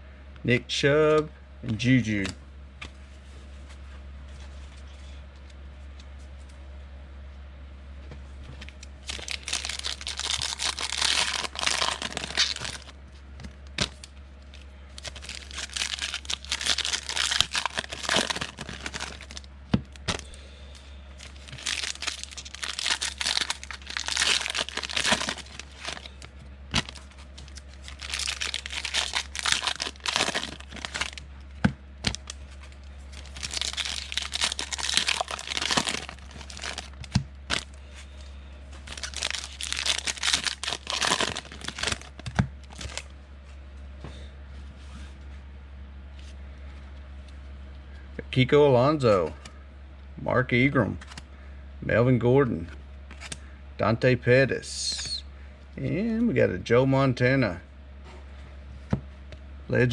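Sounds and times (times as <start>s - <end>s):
steady low hum: 0.0s - 59.9s
foil wrappers tearing and crinkling: 9.0s - 12.9s, 13.7s - 14.1s, 14.9s - 20.4s, 21.2s - 31.2s, 32.0s - 37.8s, 38.8s - 43.1s.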